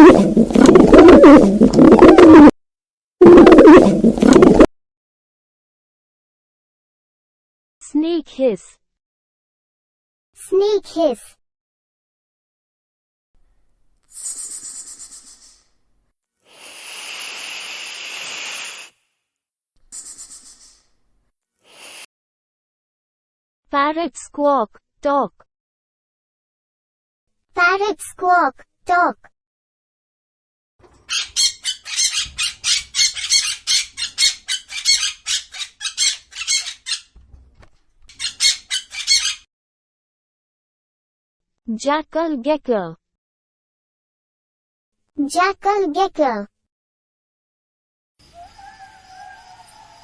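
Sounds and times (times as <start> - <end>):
snake hissing: 14.1 - 15.6, 16.4 - 19.0, 21.6 - 22.1
parrot squawking: 31.1 - 37.2, 38.1 - 39.4.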